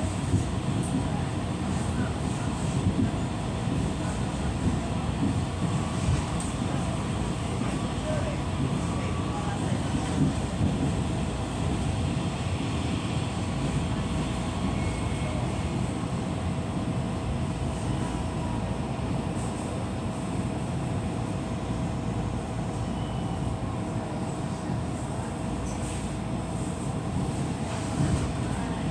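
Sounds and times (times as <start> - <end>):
train rumbling along track: 0.0 - 28.9.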